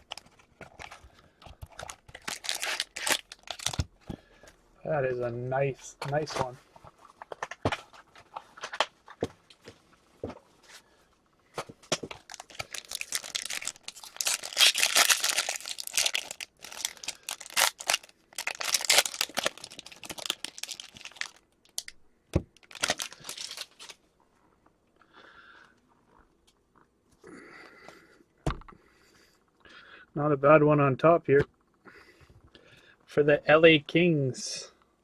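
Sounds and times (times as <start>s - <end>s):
card packaging tearing and crinkling: 1.6s - 3.9s, 12.0s - 21.9s, 22.6s - 24.0s.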